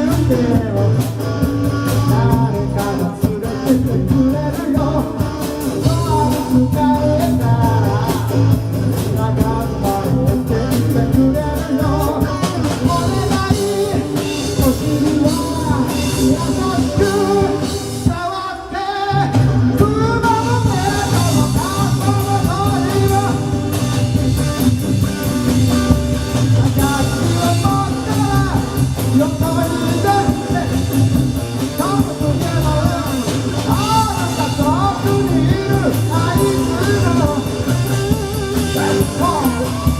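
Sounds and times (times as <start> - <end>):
person singing: 0.0 - 24.0, 26.2 - 39.9
live rock band playing: 0.0 - 39.9.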